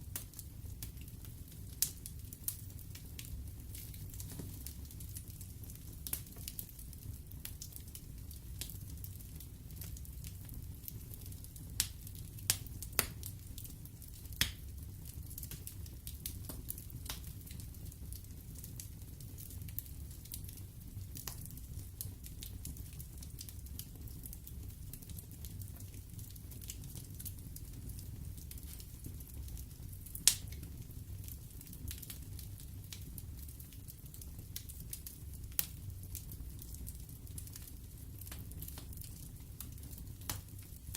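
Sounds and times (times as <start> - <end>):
wood fire crackling: 0.0 - 40.9
sharp pops of fire: 11.8 - 13.4, 30.1 - 30.7, 39.7 - 40.6.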